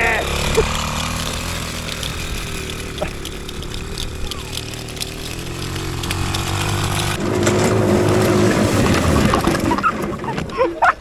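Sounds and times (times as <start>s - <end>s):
go-kart engine running: 0.0s - 11.0s.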